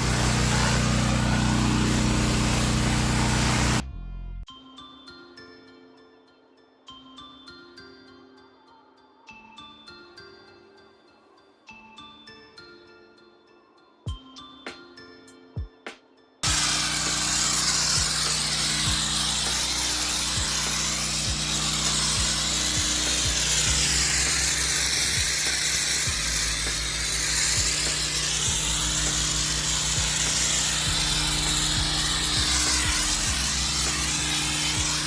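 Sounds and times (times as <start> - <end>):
high-pressure water spraying: 0.0 - 3.8, 16.4 - 35.0
pressure washer engine running: 0.0 - 3.8, 16.4 - 35.0.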